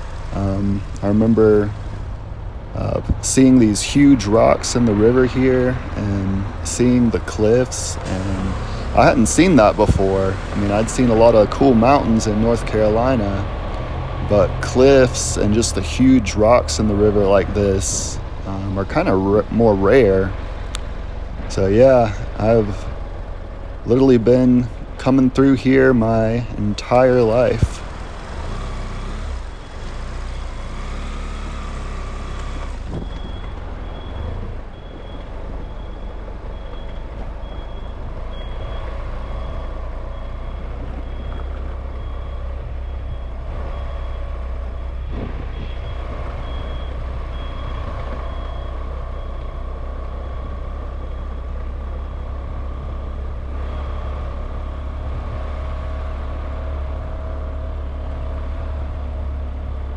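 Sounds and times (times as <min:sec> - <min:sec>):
vehicle low rumble: 0:00.0 - 0:59.9
reversing alarm beeping: 0:23.9 - 0:58.3.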